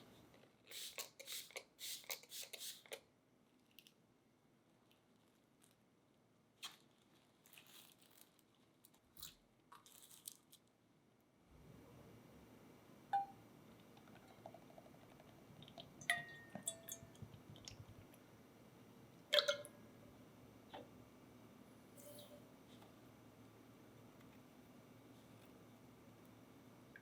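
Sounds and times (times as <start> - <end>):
low background hiss: 10.8 - 27.0.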